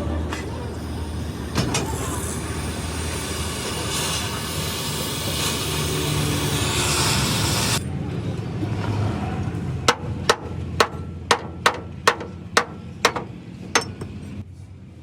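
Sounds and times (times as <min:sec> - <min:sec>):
hammer striking steel: 0:09.9 - 0:14.3.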